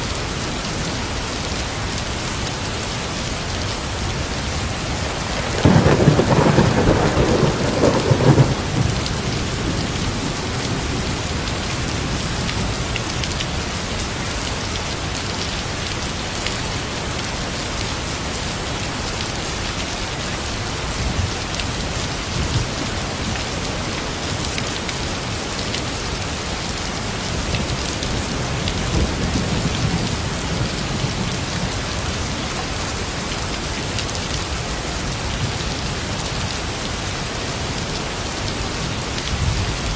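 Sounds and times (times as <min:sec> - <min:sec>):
heavy rain falling: 0:00.0 - 0:39.9
thunder rumbling: 0:03.9 - 0:12.9.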